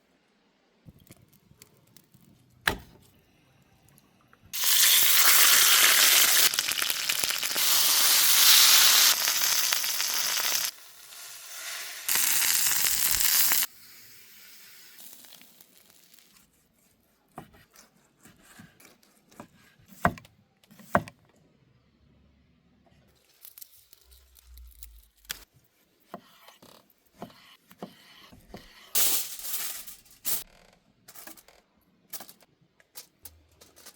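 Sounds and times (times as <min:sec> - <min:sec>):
meat sizzling in a hot pan: 0:04.6 - 0:16.2.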